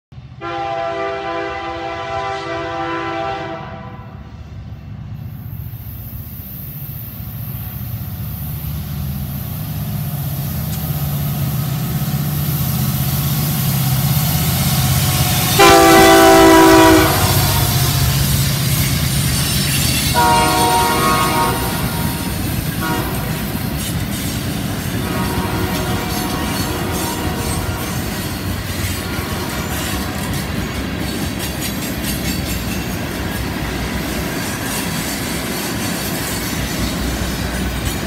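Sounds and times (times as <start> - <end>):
diesel locomotive engine rumbling: 0.1 - 38.0
train air horn: 0.4 - 4.3, 15.0 - 18.3, 20.1 - 23.5, 25.0 - 28.2, 28.9 - 30.3
freight cars rolling past: 4.2 - 38.0.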